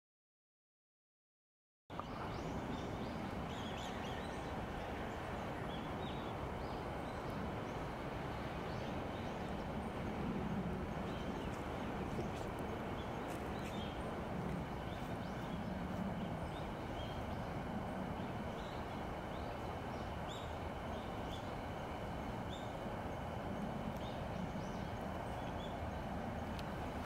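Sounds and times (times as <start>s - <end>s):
steady low rumble: 1.9s - 27.0s.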